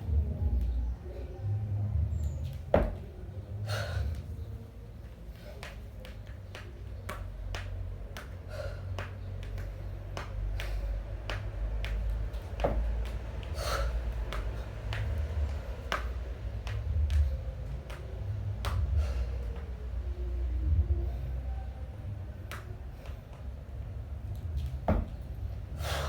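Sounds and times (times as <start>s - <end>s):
low steady rumble: 0.0s - 26.0s
sharp forceful breaths: 25.7s - 26.0s.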